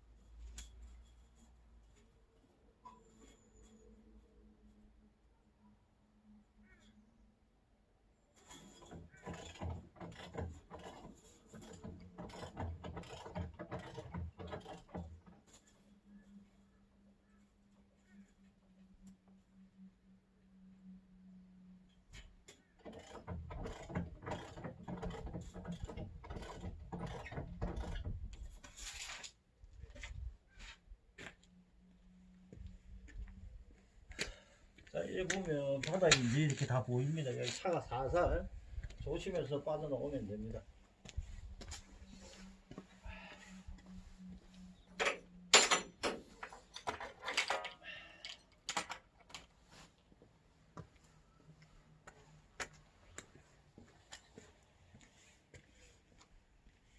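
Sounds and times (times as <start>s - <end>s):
metallic clanks and knocks: 8.5s - 15.4s, 22.5s - 28.5s, 45.0s - 49.4s
jacks cranking with mechanical clicking: 8.6s - 15.4s, 22.7s - 28.3s, 45.0s - 49.4s.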